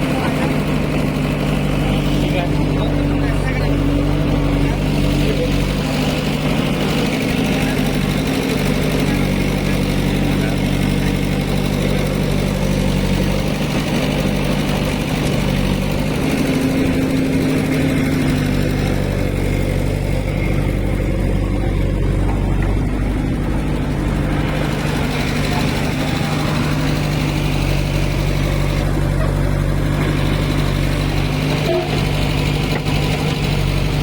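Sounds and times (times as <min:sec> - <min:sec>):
diesel engine running steadily: 0:00.0 - 0:34.0.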